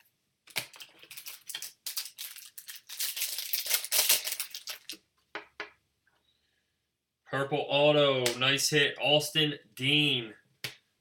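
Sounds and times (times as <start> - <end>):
plastic packaging crinkling: 0.5 - 5.1.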